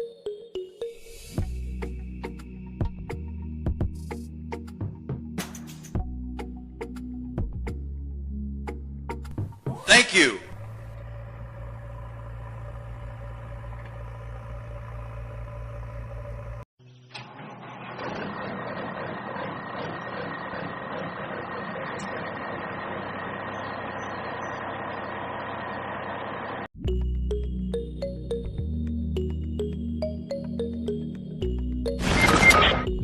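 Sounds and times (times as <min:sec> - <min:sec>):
high noisy motor whirr: 0:10.5 - 0:16.6.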